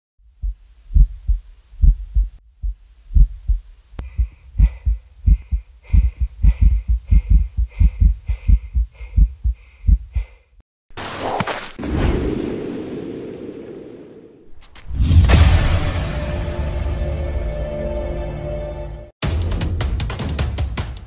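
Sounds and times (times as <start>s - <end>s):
heartbeat thumps: 0.3s - 10.4s.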